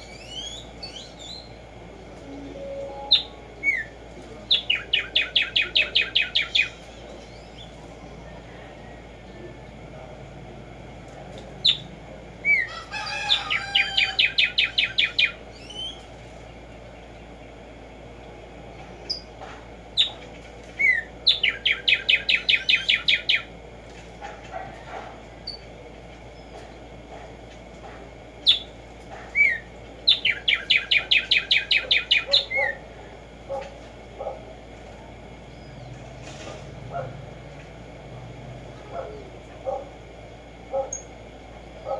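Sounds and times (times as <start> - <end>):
sparrow singing: 0.0 - 9.5, 11.6 - 17.6, 19.9 - 23.6, 28.4 - 32.9.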